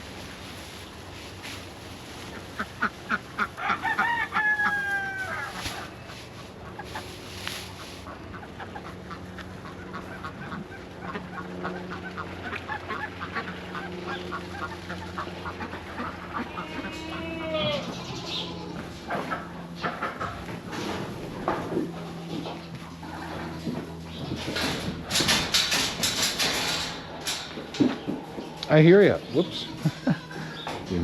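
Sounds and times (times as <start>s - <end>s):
steady low hum: 0.0s - 31.0s
chickens clucking: 0.2s - 31.0s
chickens squawking: 1.5s - 25.5s, 26.4s - 31.0s.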